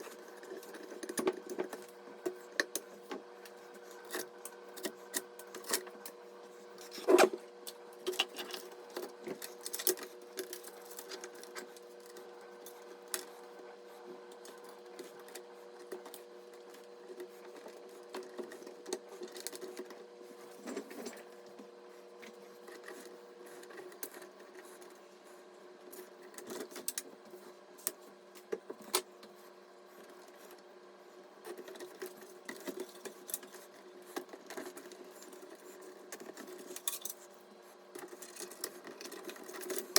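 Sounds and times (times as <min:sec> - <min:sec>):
computer parts clicking and scraping: 0:06.8 - 0:13.3, 0:31.4 - 0:37.3, 0:37.9 - 0:39.9.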